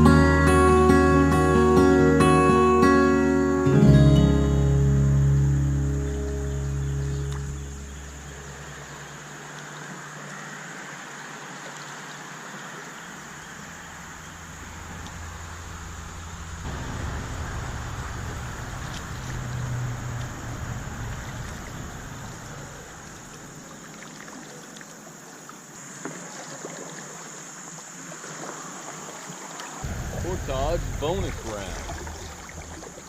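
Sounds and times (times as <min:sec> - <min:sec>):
river water rushing: 0:00.0 - 0:33.0
wind rumble on microphone: 0:14.5 - 0:23.6, 0:29.8 - 0:33.0.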